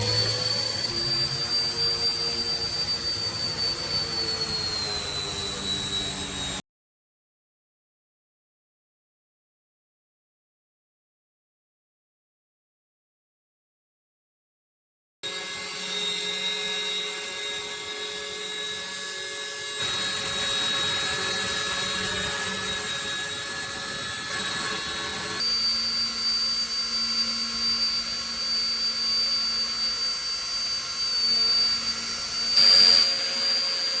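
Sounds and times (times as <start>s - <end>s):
model helicopter motors whining: 0.0s - 6.6s, 15.2s - 34.0s.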